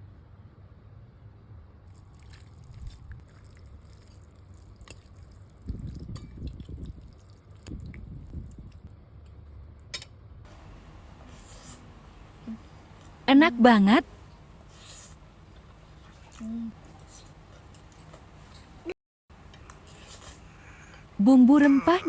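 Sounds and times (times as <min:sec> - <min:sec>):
person chewing food: 0:01.9 - 0:08.9, 0:19.5 - 0:22.0.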